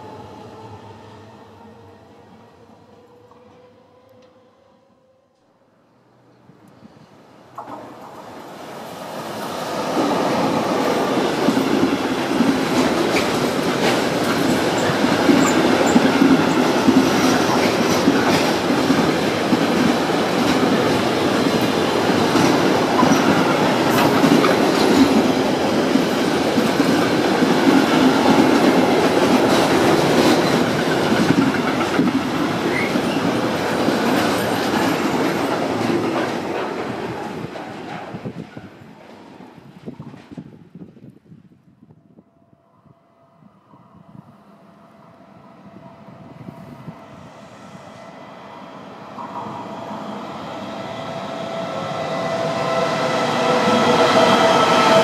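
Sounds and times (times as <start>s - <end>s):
electric locomotive passing: 0.0s - 55.0s.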